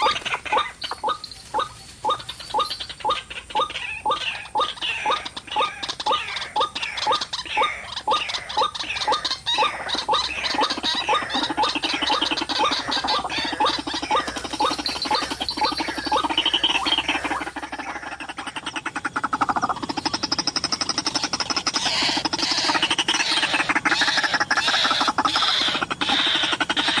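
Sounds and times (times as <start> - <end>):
bird chattering: 0.0 - 27.0
waterhen croaking calls: 0.0 - 27.0.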